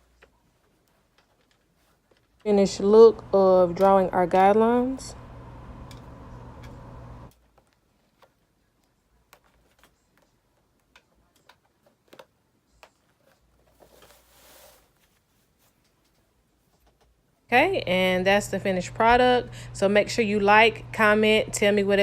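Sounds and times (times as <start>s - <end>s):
steady low hum: 2.4s - 7.3s, 17.5s - 22.0s.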